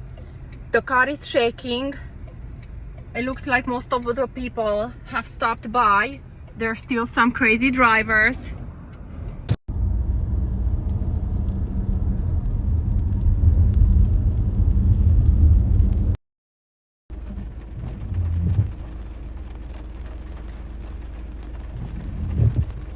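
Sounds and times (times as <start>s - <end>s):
storm wind buffeting a car: 9.4s - 16.2s, 17.1s - 22.9s.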